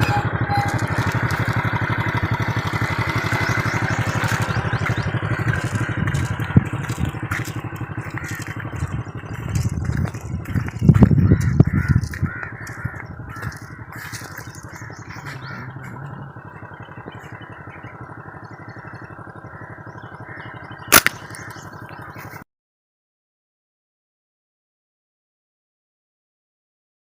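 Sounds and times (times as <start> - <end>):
loud low rumble: 0.0 - 22.1
birds cawing: 0.0 - 22.4
sharp snap: 20.9 - 21.3.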